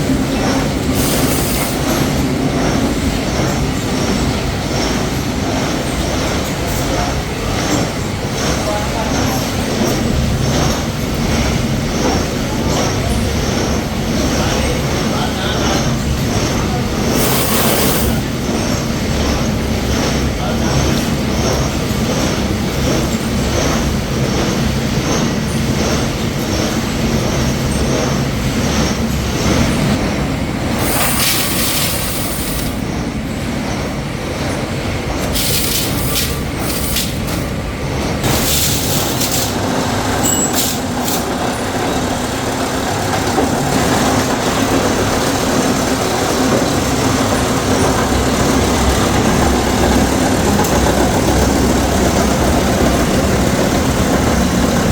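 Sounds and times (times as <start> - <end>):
harsh high-pitched hissing: 17.0 - 18.2
metalworking machinery din: 33.7 - 54.9.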